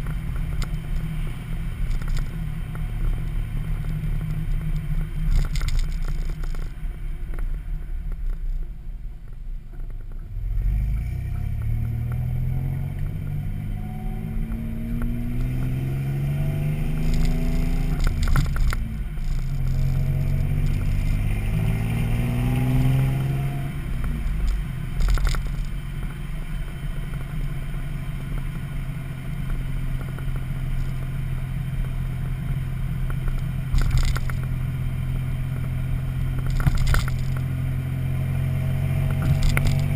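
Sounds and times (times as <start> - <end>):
deep engine exhaust revving: 10.3 - 26.0, 27.0 - 39.9.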